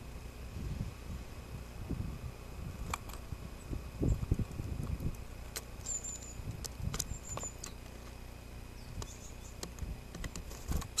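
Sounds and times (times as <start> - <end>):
steady low hum: 0.0 - 11.0
high thin bird calls: 5.7 - 7.9, 8.7 - 9.6.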